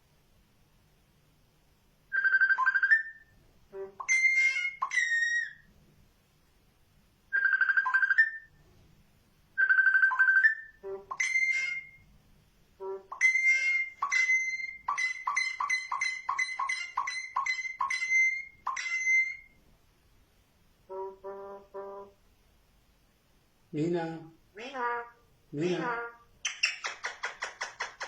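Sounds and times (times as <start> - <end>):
bird whistling a ringtone: 2.1 - 3.3, 4.0 - 5.6, 7.3 - 8.5, 9.6 - 12.0, 13.1 - 19.5.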